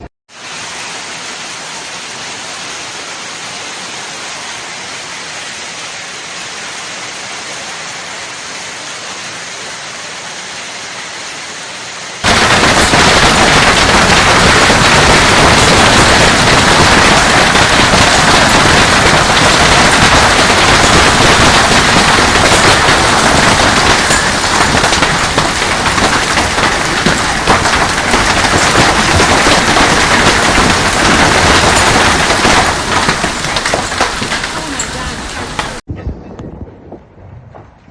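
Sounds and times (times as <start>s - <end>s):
heavy rain downpour: 0.0s - 35.9s
hailstones pelting hard surfaces: 12.2s - 35.8s.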